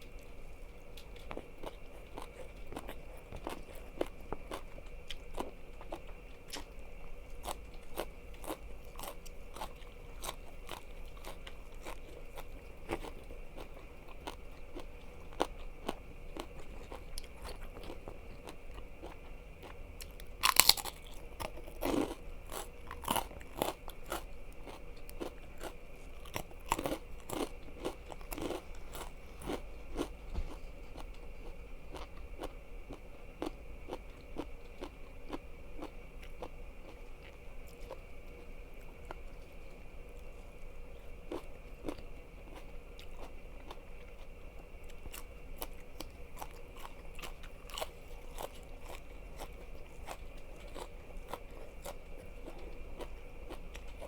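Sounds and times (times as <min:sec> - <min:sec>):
crunchy bites into food: 0:07.3 - 0:31.2
wet chewing: 0:07.3 - 0:31.2, 0:44.8 - 0:54.0.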